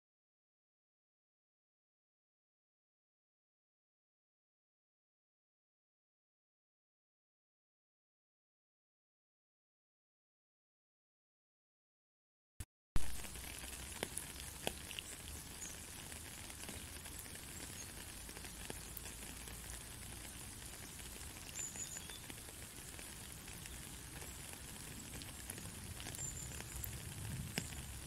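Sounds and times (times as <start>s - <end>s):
rain falling on puddle: 13.0s - 28.0s.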